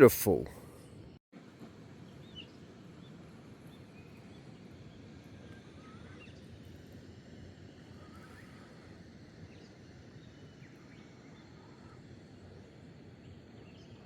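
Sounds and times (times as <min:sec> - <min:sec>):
low outdoor background: 0:00.0 - 0:14.0
faint bird chirps and whistles: 0:07.9 - 0:12.8.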